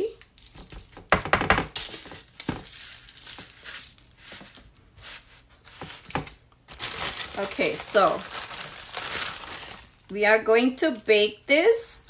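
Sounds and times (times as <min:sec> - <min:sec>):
rustling on a counter: 0:00.2 - 0:10.1.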